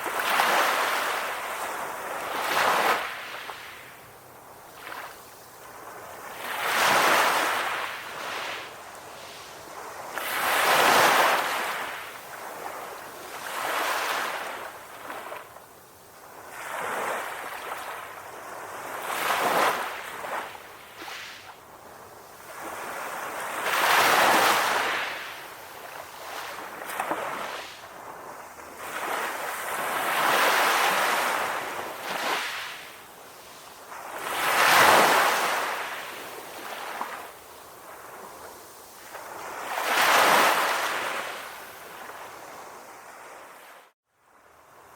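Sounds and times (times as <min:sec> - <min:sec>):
ocean waves washing in: 0:22.3 - 0:44.0.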